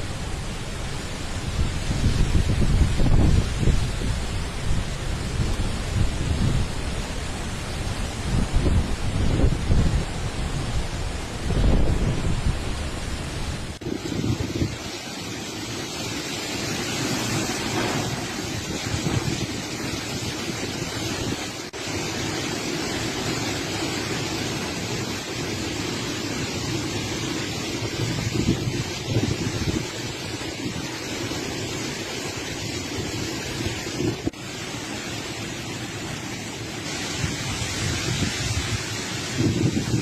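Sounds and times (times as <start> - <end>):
wind buffeting microphone: 0.0 - 15.1, 16.9 - 21.7, 27.4 - 31.6, 36.9 - 40.0
heavy rain: 0.0 - 40.0
storm wind: 0.0 - 40.0.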